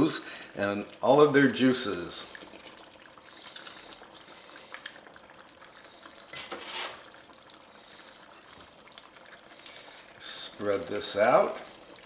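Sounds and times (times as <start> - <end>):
liquid simmering: 0.0 - 12.0
tomatoes poured into a pan: 6.3 - 7.3.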